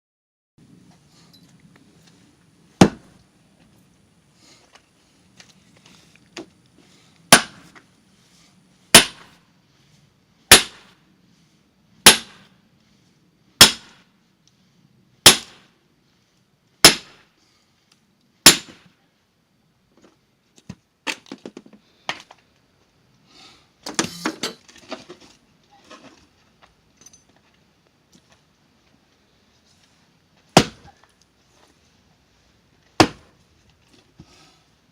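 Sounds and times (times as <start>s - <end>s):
axe blows splitting log: 7.3s - 7.8s, 8.9s - 9.3s, 10.5s - 10.9s.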